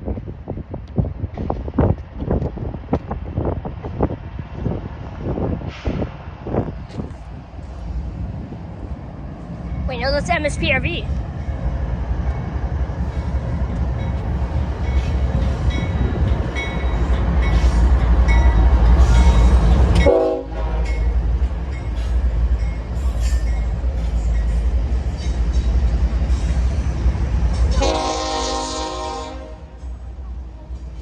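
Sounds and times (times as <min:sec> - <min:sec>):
diesel locomotives rumbling past: 0:00.0 - 0:31.0
train horn blast: 0:20.0 - 0:21.0, 0:27.7 - 0:29.8.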